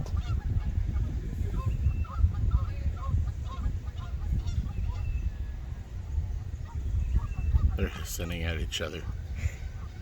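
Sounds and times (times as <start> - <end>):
geese honking: 0.1 - 5.3, 8.8 - 10.0.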